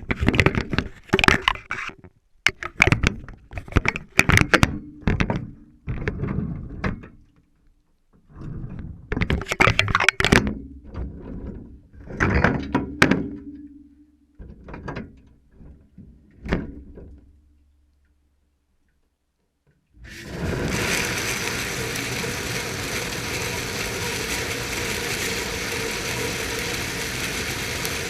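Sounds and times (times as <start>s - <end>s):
low steady hum: 11.8s - 14.6s.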